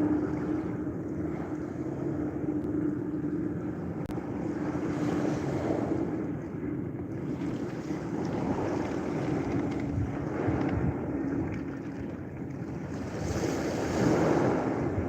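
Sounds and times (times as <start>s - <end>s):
steady low hum: 0.0s - 15.0s
surf washing on a beach: 7.2s - 15.0s.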